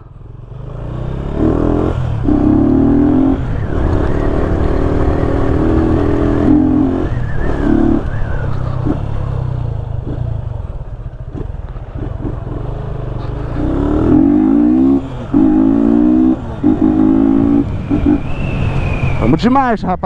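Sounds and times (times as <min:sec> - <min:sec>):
motorcycle engine revving: 0:00.0 - 0:19.4
gear change: 0:00.8 - 0:19.7.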